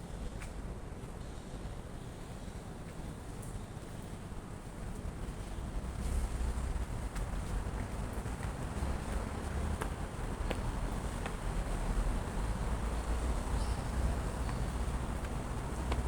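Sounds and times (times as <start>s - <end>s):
wind buffeting microphone: 4.9s - 16.0s.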